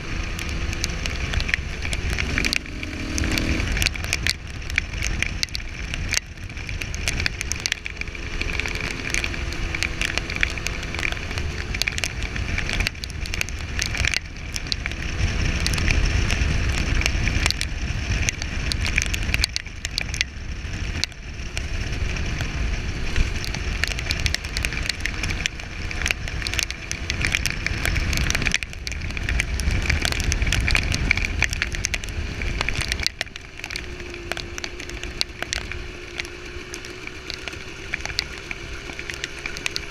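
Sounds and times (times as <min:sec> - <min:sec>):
crackling rush: 0:00.0 - 0:39.9
motorcycle engine revving: 0:00.0 - 0:39.9.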